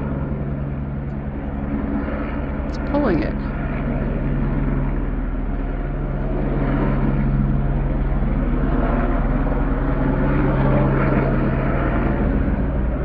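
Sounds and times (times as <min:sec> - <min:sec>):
helicopter rotor drone: 0:00.0 - 0:13.0.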